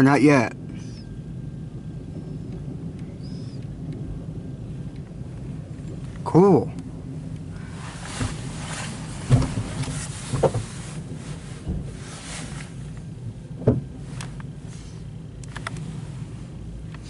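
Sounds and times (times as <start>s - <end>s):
train wheels rumbling on rails: 0.0s - 17.0s
train cars clanking: 7.7s - 14.2s.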